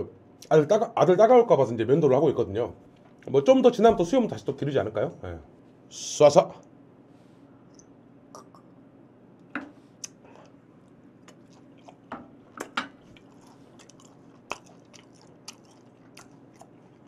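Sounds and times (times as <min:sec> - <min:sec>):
faint low hum: 0:00.0 - 0:17.0
man chewing with wet smacks: 0:10.0 - 0:17.0.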